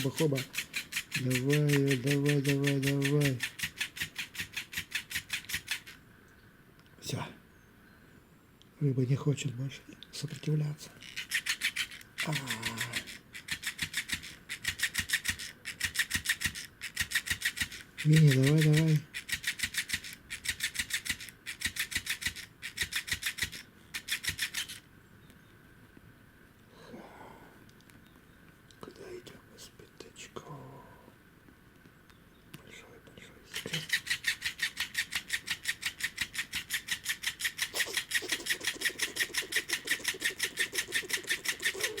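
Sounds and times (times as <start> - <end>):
kitten claws raking fabric toy: 0.0 - 5.9, 33.5 - 42.0
toy mechanism clicking rapidly: 0.0 - 6.0, 10.2 - 24.8, 33.5 - 42.0.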